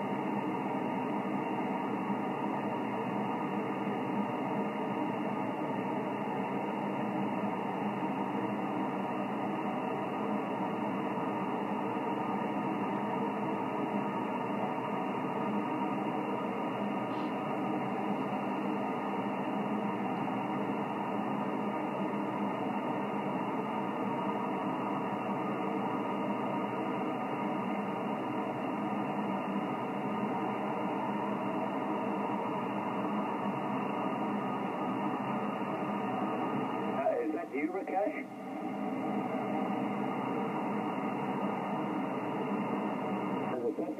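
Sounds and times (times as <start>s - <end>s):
radio static hiss: 0.0s - 43.9s.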